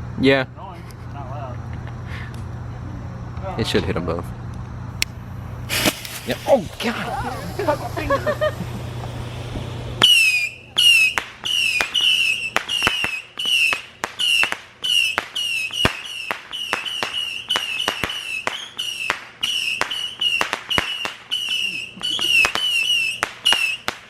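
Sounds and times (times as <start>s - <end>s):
sharp pops: 5.0s - 21.6s
missile launches whistling: 5.6s - 24.0s.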